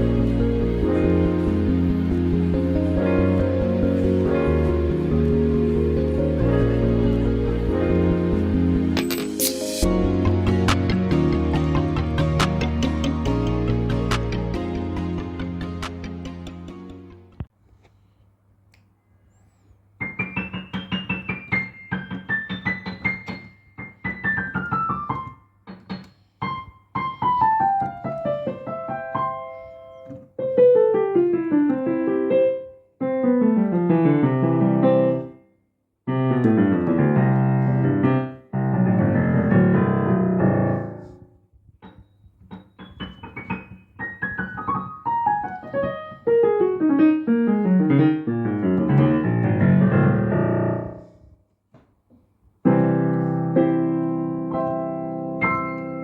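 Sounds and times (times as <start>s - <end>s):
digital piano fast runs and chords: 0.0s - 17.4s, 20.0s - 26.0s, 36.2s - 41.1s, 42.5s - 51.0s, 52.7s - 56.0s.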